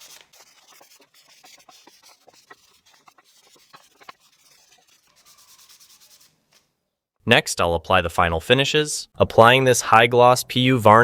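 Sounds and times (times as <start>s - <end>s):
hand sanding wood: 0.0s - 6.4s.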